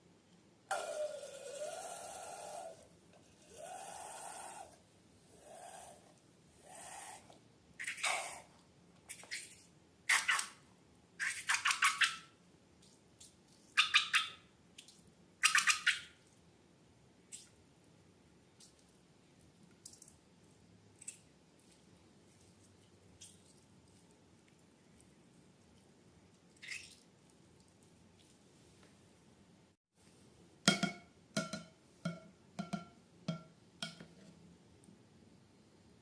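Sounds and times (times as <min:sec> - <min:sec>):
air squealing from balloon necks: 0:00.7 - 0:04.8.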